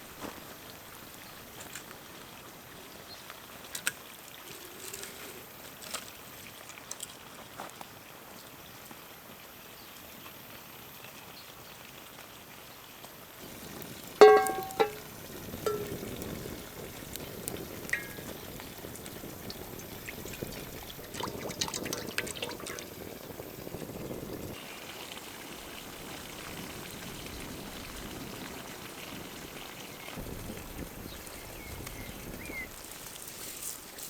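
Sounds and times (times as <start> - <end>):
clinks and handling sounds: 14.2 - 15.0, 15.6 - 16.0, 17.9 - 18.4
utensil striking metal cookware: 14.2 - 16.2, 17.9 - 18.6.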